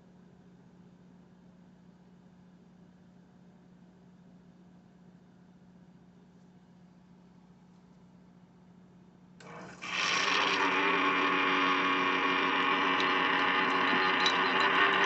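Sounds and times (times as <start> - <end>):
coffee maker pump buzzing: 9.4 - 15.0.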